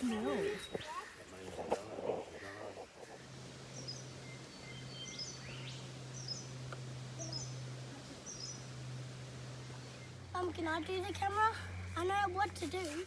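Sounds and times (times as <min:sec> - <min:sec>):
faint low hum: 0:00.0 - 0:13.0
bird chirping: 0:03.2 - 0:12.4.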